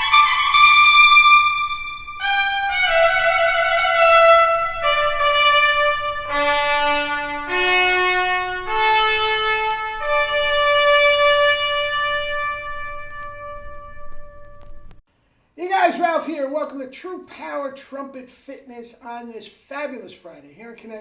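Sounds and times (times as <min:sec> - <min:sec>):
solo trumpet slow melody: 0:00.0 - 0:15.0.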